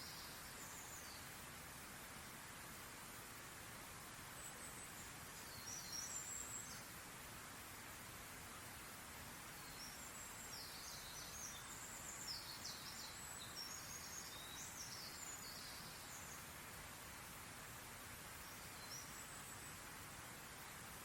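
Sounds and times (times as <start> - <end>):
faint bird chirps: 0.0 - 1.4, 4.2 - 7.0, 8.5 - 16.6, 18.3 - 21.0
outdoor ambience hiss: 0.0 - 21.0.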